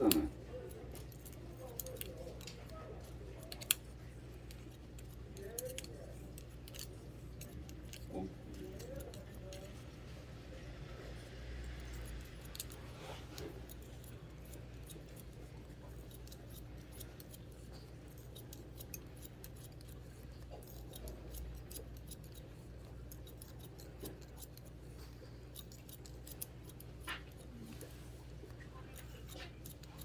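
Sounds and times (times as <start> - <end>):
scissors snipping hair: 0.0 - 30.0.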